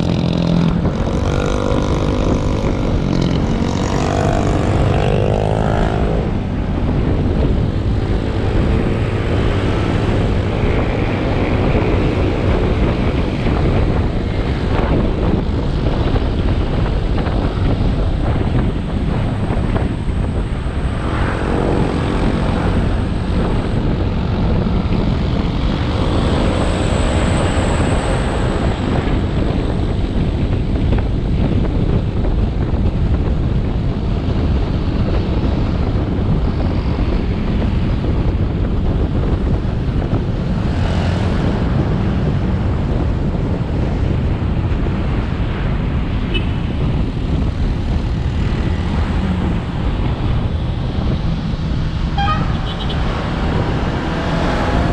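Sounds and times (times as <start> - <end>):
wind and road noise: 0.0 - 54.9.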